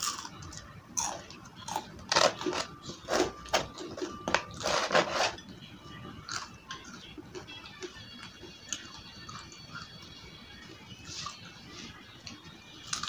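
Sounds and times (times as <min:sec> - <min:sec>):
crunching of fried batter: 0:06.2 - 0:13.0.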